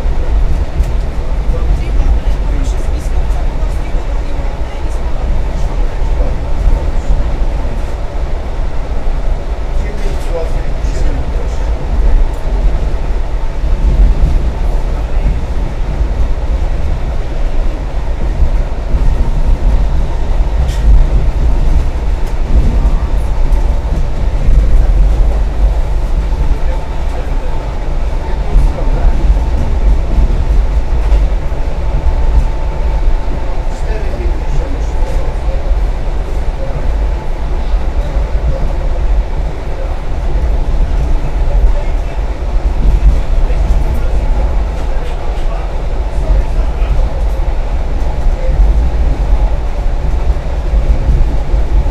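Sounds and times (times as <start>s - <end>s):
train wheels rumbling on rails: 0.0s - 51.9s.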